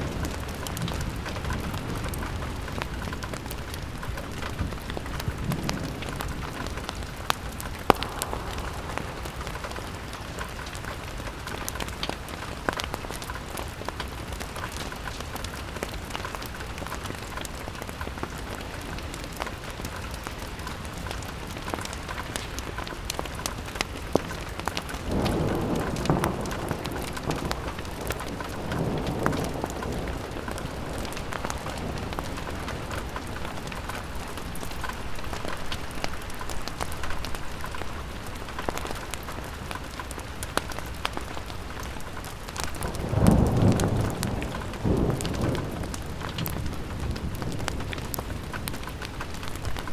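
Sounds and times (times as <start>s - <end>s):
rain pattering on a window: 0.0s - 49.9s
rushing noise: 7.9s - 11.0s.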